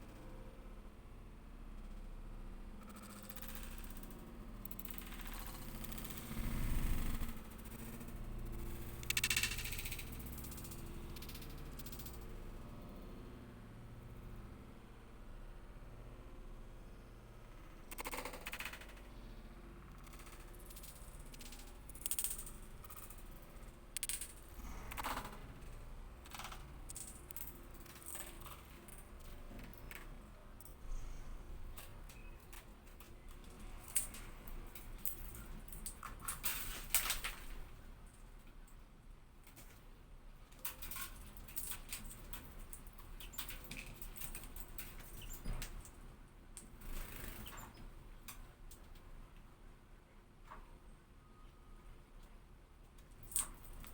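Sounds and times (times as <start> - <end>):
sharp clicks and crackles: 2.8 - 12.6, 17.6 - 19.2, 19.8 - 30.8.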